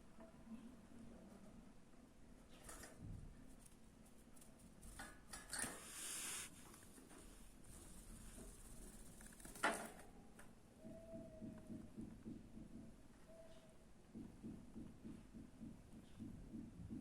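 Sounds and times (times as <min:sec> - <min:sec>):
faint rustling: 0:02.6 - 0:09.6.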